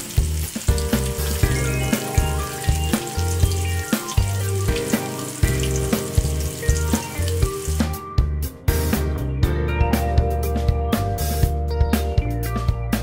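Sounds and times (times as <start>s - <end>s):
chicken deep-frying in oil: 0.0s - 9.0s
background music with drum beat: 0.0s - 13.0s.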